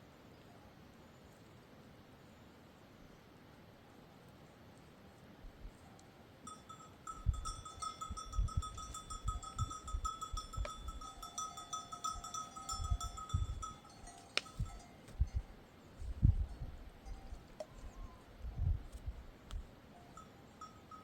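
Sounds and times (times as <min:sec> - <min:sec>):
livestock bells jingling: 0:06.5 - 0:15.6, 0:16.5 - 0:17.8, 0:19.9 - 0:21.0.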